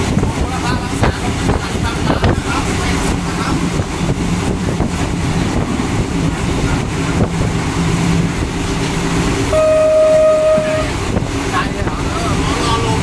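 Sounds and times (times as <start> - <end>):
train wheels rumbling on rails: 0.0 - 13.0
wind: 0.0 - 13.0
train horn: 9.5 - 11.0.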